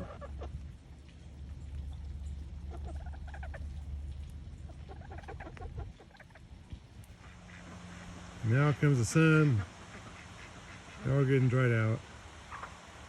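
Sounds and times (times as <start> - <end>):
chickens clucking: 0.0 - 0.6, 1.9 - 6.5, 7.1 - 11.5, 12.3 - 13.0
steady low rumble: 0.0 - 13.0.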